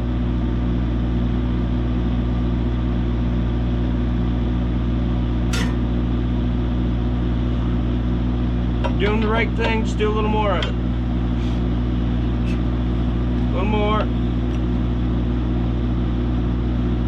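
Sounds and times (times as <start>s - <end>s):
engine idling: 2.4s - 17.0s
high-pitched squeak: 5.5s - 5.8s.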